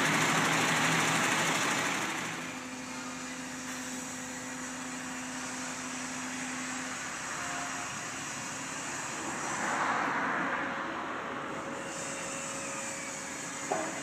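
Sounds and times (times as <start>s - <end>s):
broad rushing noise: 8.4s - 14.0s.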